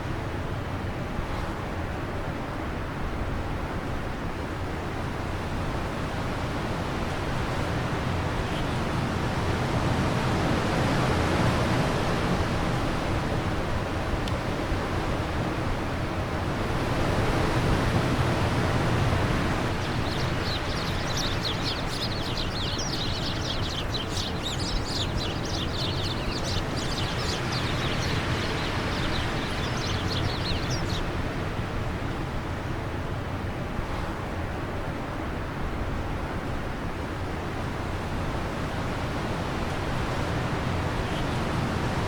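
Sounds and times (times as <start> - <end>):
wind blowing: 16.3 - 32.1
bird chirping: 19.1 - 31.2.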